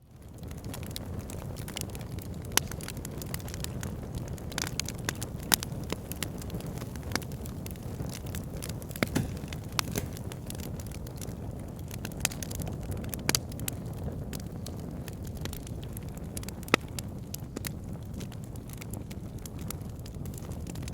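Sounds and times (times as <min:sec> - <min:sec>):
fire crackling and popping: 0:00.0 - 0:20.9
fire rumbling: 0:00.0 - 0:20.9.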